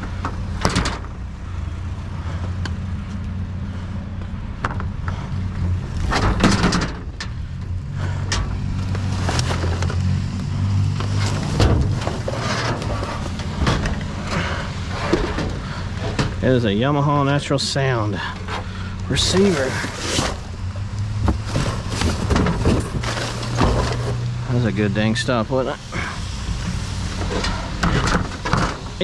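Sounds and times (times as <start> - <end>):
knocks and rattles: 0.0 - 1.3, 4.6 - 16.6, 21.1 - 24.4, 26.0 - 29.0
truck engine humming: 0.0 - 29.0.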